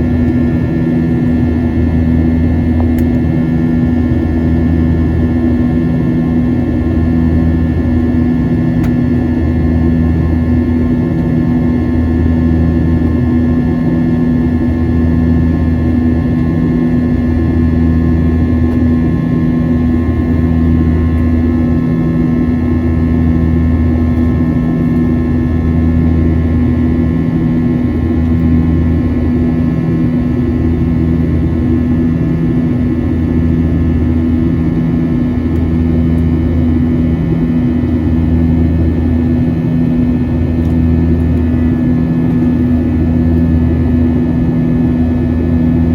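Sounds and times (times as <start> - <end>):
jet engine cabin drone: 0.0 - 45.9
low pulsing hum: 0.0 - 45.9.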